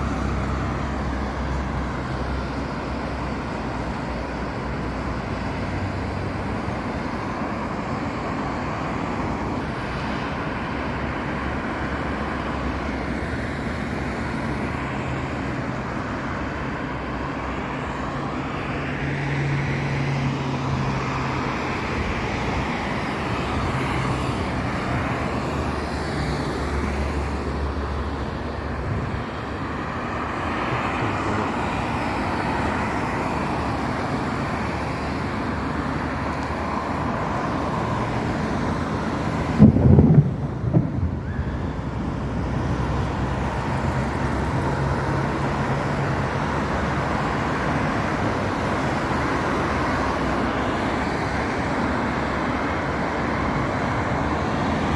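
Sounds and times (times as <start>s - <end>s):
city traffic: 0.0s - 54.9s.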